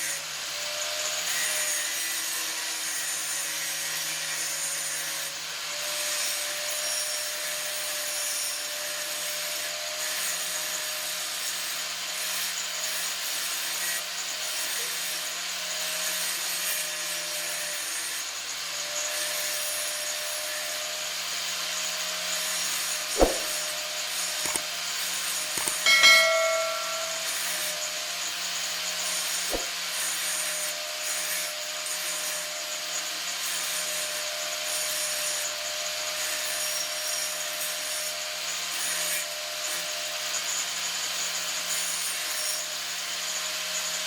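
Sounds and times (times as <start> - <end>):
sharp knock: 23.2 - 23.6, 25.6 - 27.4.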